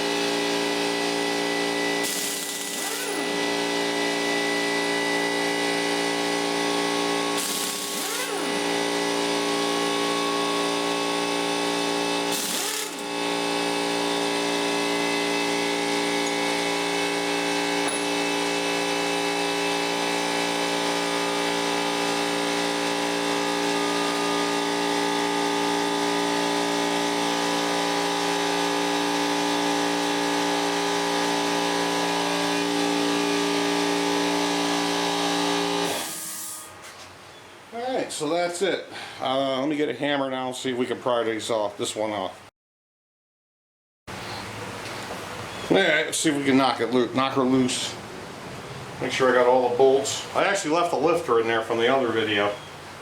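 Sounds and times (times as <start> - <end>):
machine motor running: 0.0 - 36.6.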